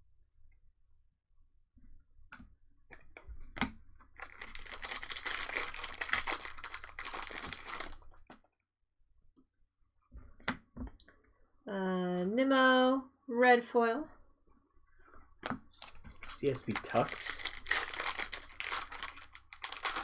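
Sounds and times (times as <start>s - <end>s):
wrapper tearing and crinkling: 4.2s - 8.1s, 15.8s - 20.0s.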